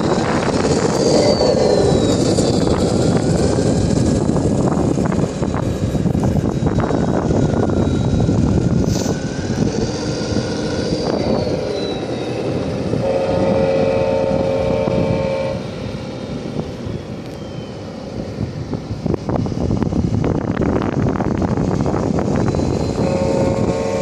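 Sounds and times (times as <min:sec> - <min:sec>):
truck engine and road rumble: 0:00.0 - 0:13.0, 0:15.6 - 0:23.4
wind on microphone: 0:00.0 - 0:24.0
multi-tone truck horn: 0:12.9 - 0:15.7, 0:23.0 - 0:24.0.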